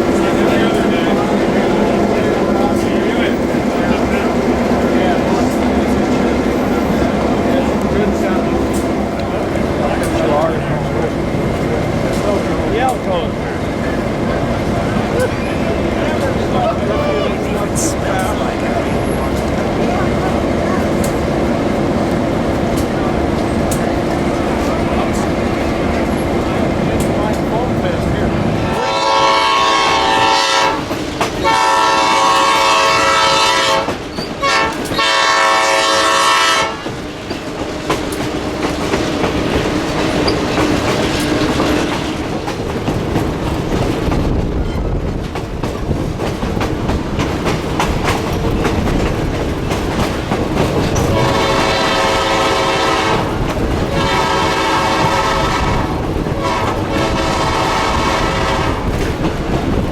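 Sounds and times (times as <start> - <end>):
train wheels clicking over rail joints: 0.0 - 16.8, 17.4 - 59.9
locomotive horn blasts: 28.7 - 36.9, 51.1 - 59.0.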